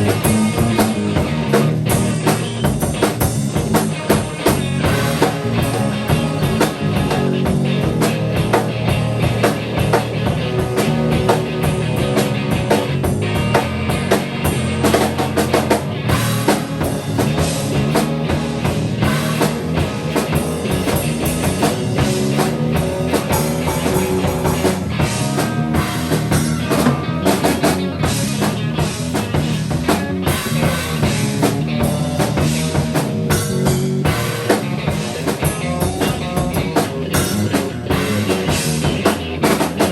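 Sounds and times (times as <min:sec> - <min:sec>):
drum kit playing busily: 0:00.0 - 0:39.9
guitar: 0:00.0 - 0:39.9.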